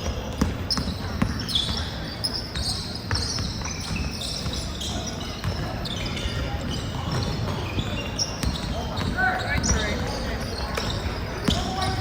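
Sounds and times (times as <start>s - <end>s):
sneakers squeaking: 0.0s - 12.0s
players' voices echoing: 4.4s - 12.0s.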